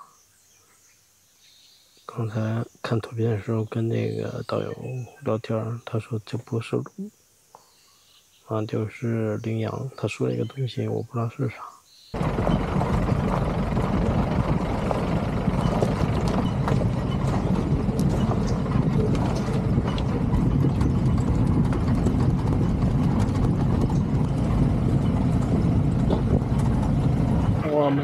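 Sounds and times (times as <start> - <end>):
vehicle body rattling and knocking: 12.2 - 27.7
truck engine running: 12.2 - 28.0.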